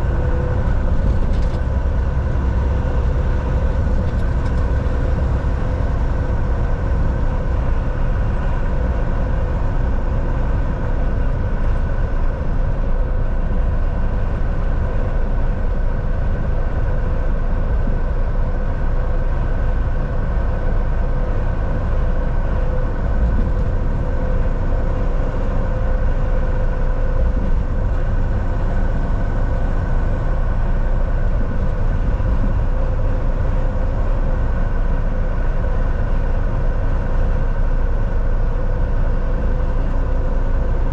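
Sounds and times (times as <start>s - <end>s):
tyre and road rumble: 0.0s - 15.0s
truck engine drone: 0.0s - 40.9s.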